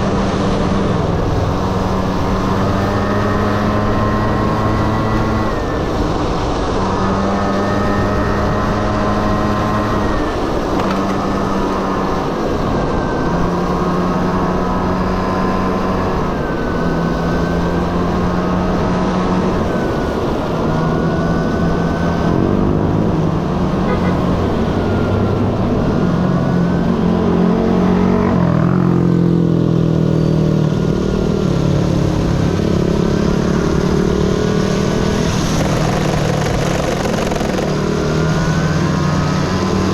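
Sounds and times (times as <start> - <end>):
another engine: 0.0 - 39.9
wind and road noise: 0.0 - 39.9
scooter engine revving: 30.9 - 39.9.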